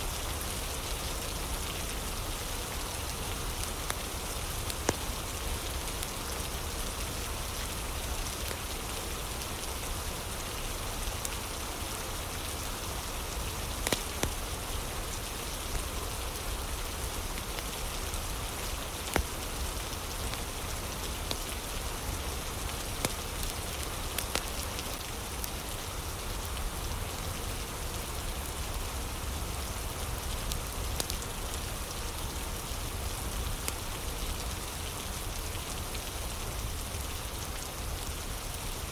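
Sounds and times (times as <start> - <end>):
heavy rain: 0.0 - 38.9
wood fire crackling and popping: 3.1 - 6.2, 13.2 - 25.7, 30.2 - 31.3.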